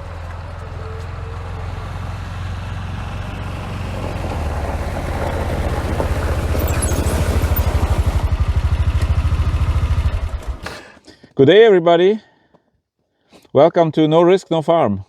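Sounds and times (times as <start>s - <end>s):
engine running at low revs: 0.0s - 10.7s.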